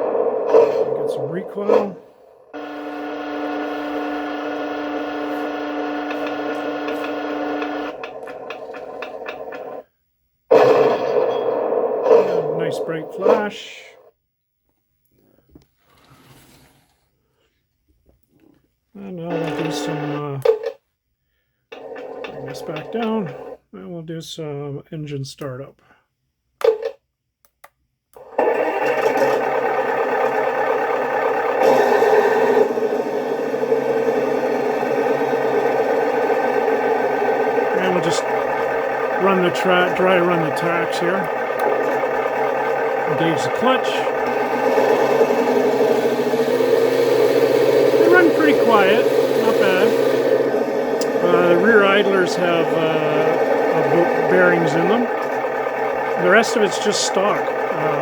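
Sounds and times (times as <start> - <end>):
simulated tank engine running: 0.0 - 9.8, 10.5 - 13.9, 19.2 - 20.4, 21.7 - 23.6, 28.2 - 58.0
small electric gear motor whirring: 0.0 - 9.8, 28.2 - 58.0.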